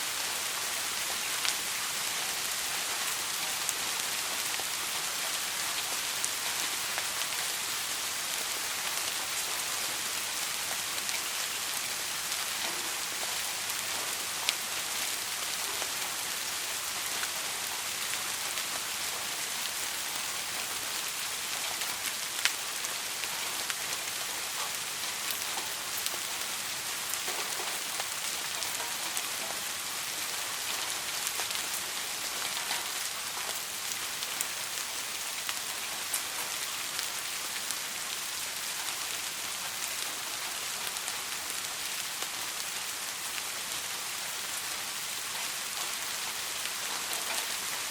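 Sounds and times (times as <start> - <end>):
steady rain hiss: 0.0 - 47.9
raindrops ticking: 17.0 - 38.7.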